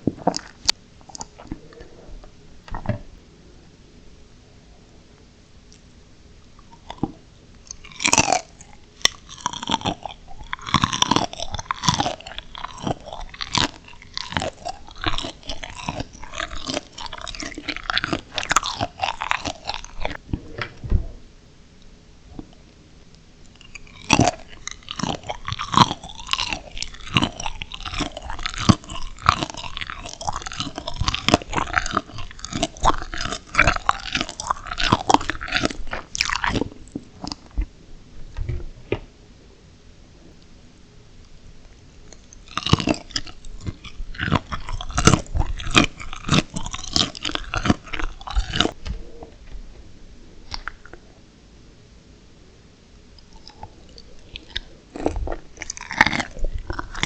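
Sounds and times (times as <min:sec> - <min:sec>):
person chewing crunchy shrimp: 0:00.0 - 0:01.7, 0:06.6 - 0:20.2, 0:23.5 - 0:37.6, 0:42.1 - 0:49.1, 0:53.1 - 0:57.0.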